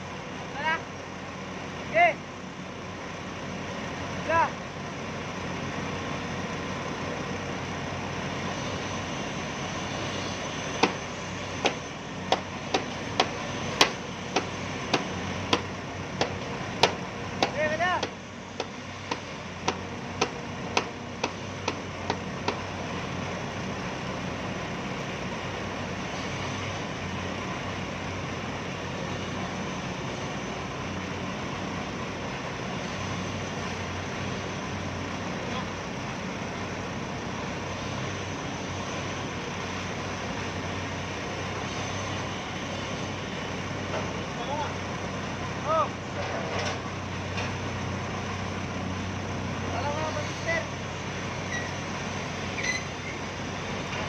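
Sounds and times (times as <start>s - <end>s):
engine running steadily: 0.0s - 54.0s
machine drone: 8.0s - 23.5s.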